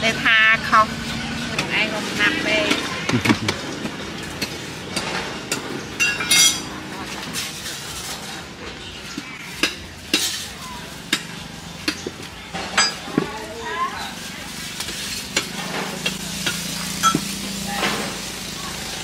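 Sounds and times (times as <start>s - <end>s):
utensils clinking and knocking: 2.6s - 13.4s, 14.7s - 18.2s
food sizzling: 13.9s - 19.0s.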